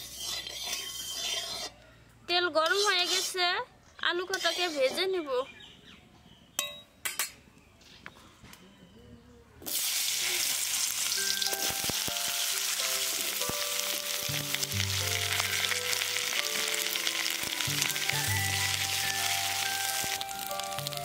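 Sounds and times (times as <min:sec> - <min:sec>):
potatoes sizzling in hot oil: 0:09.7 - 0:21.0.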